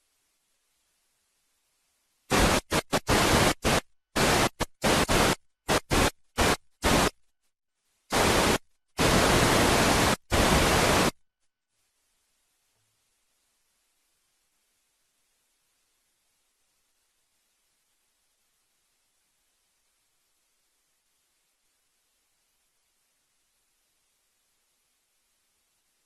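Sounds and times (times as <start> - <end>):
bursts of white-noise static: 0.0 - 11.2.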